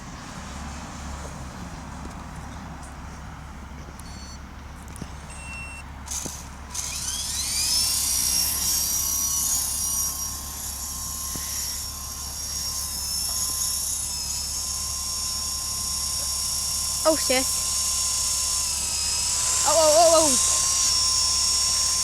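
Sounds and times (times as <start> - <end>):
toy helicopter motor whine: 5.3 - 22.0.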